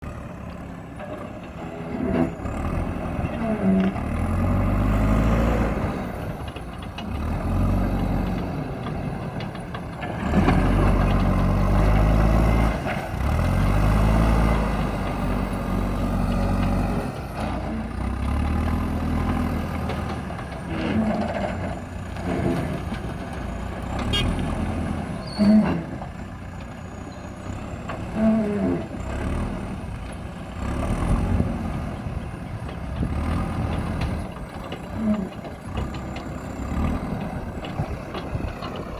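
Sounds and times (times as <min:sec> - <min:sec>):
diesel engine revving: 0:00.0 - 0:38.9
metal knocks and clanks: 0:32.2 - 0:38.9.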